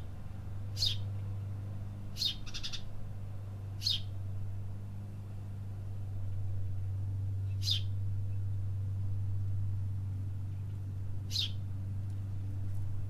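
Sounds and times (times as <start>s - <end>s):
steady low hum: 0.0s - 13.0s
high bird chirps: 0.8s - 1.0s, 2.2s - 2.9s, 3.8s - 4.1s, 7.5s - 7.9s, 11.3s - 11.6s.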